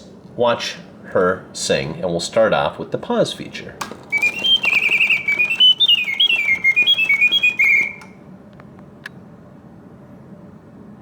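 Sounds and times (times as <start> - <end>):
mechanical bird whistling and trilling: 4.1 - 8.2.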